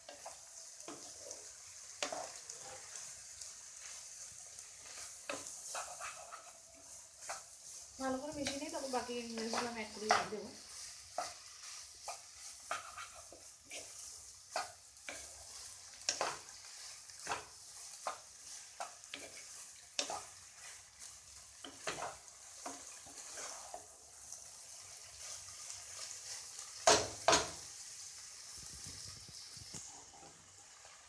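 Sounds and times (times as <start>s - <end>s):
noodles sizzling in a pan: 0.0s - 31.0s
utensil scraping a pan: 3.8s - 24.0s.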